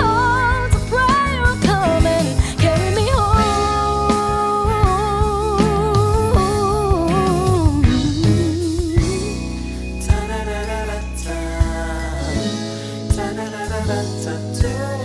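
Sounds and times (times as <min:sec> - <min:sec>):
band with guitar and drums: 0:00.0 - 0:15.0
woman singing with vibrato: 0:00.0 - 0:15.0.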